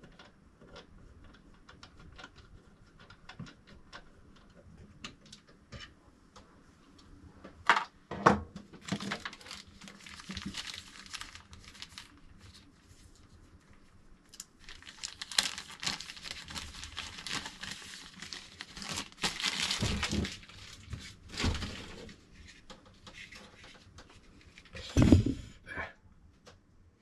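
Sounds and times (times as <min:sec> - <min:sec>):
wrapping crinkling and tearing: 0:08.8 - 0:23.8
loud thump: 0:24.9 - 0:25.5.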